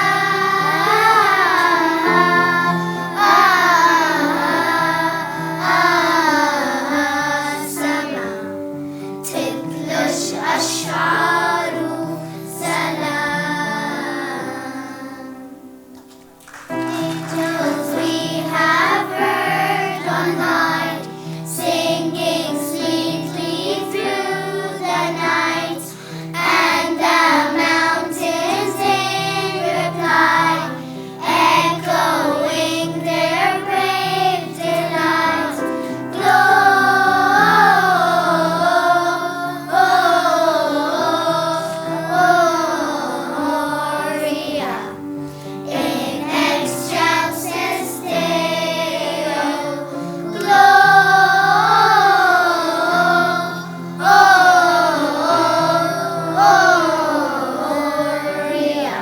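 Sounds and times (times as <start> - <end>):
instrumental accompaniment: 0.0 - 13.6
children's choir singing: 0.0 - 59.0.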